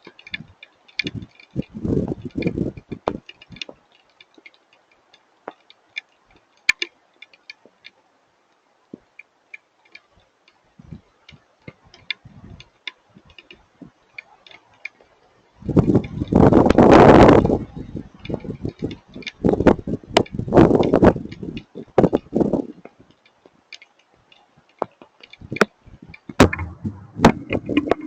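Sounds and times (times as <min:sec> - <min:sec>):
hail and raindrops tapping: 0:24.8 - 0:28.0
dull low knocks: 0:26.4 - 0:28.0.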